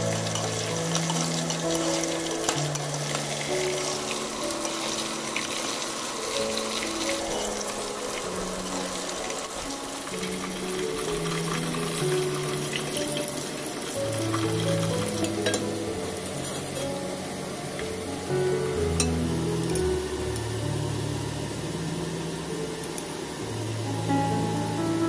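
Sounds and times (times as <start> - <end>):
metal spoon stirring: 0.0 - 11.5, 15.2 - 17.0
background music with held notes: 0.0 - 25.0
food deep-frying in hot oil: 0.0 - 25.0.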